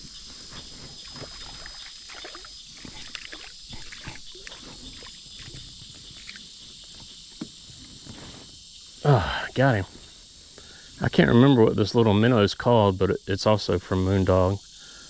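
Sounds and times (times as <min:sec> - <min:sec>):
insects droning: 0:00.0 - 0:15.0
light splashing: 0:01.0 - 0:06.4.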